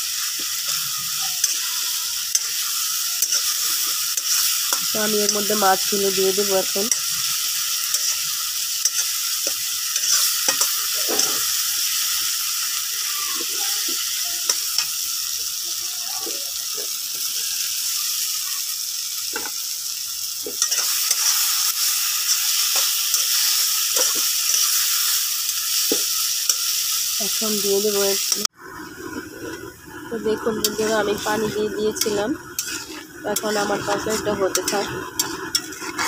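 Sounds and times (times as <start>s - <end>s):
metal spatula scraping a wok: 0.0s - 12.7s, 20.5s - 26.9s, 29.1s - 36.0s
masala sizzling in oil: 0.0s - 36.0s.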